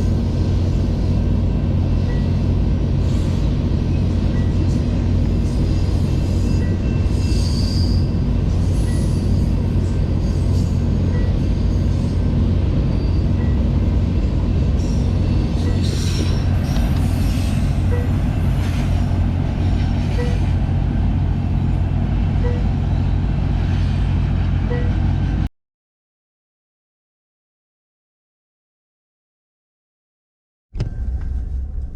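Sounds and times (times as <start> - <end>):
freight train rumbling past: 0.0 - 25.5
high-pitched wheel squeals: 5.4 - 9.6, 12.8 - 13.6, 14.8 - 18.9.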